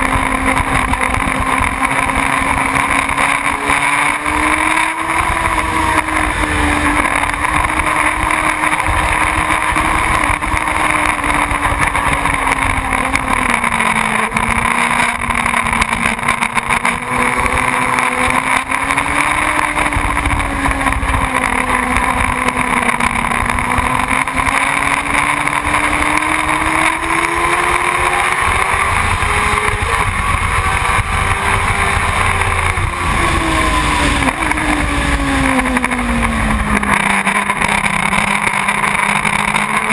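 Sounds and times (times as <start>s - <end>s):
motorcycle engine running: 0.0s - 39.9s
wind rumbling on microphone: 16.8s - 38.0s.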